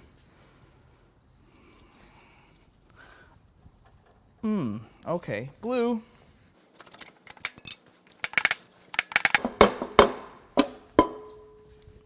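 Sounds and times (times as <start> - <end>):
metal tools clinking and clanking: 6.7 - 9.4.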